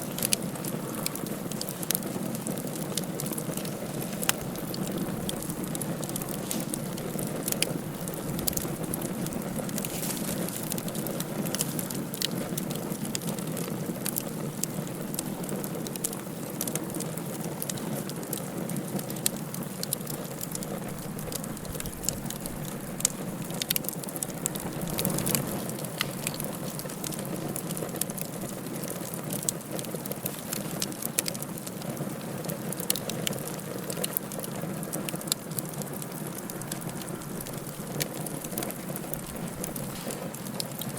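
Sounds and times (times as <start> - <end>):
fire crackles and pops: 0.0 - 40.9
low rush of fire: 0.0 - 40.9.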